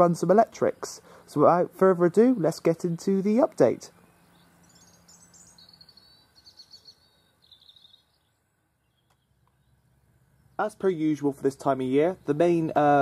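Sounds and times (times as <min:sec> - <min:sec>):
songbird chirping and twittering: 0:00.0 - 0:13.0.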